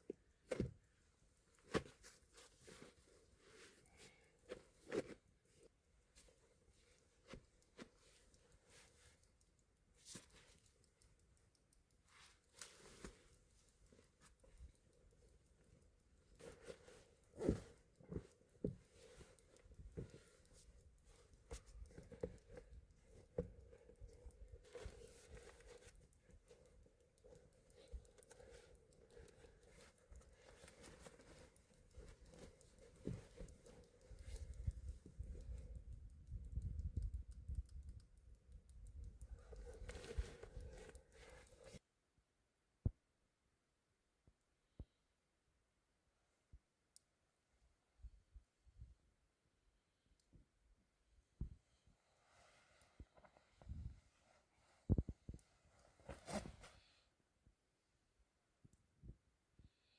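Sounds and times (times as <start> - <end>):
faint clicks: 0.0 - 41.8
faint ticks and crackles: 0.0 - 41.9, 50.0 - 57.8
soft rustle: 0.0 - 41.9, 51.4 - 57.6.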